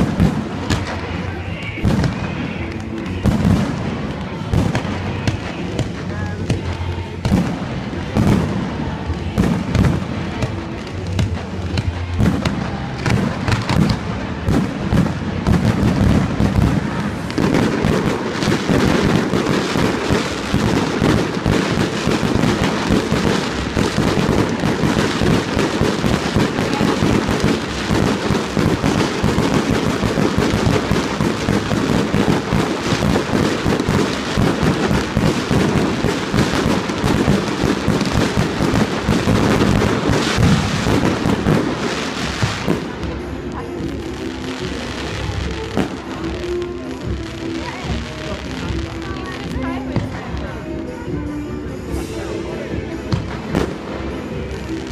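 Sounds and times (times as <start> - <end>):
fireworks bursts and bangs: 0.0 - 54.9.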